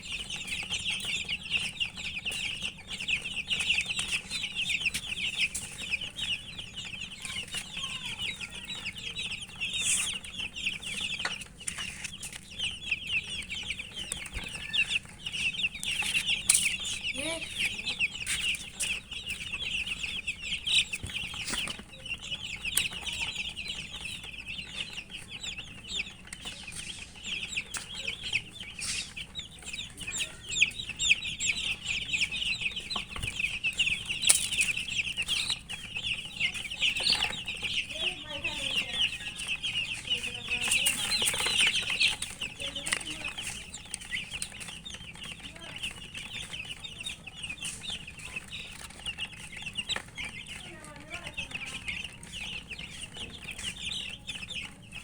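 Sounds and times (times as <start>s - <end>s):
chicks chirping: 0.0s - 55.0s.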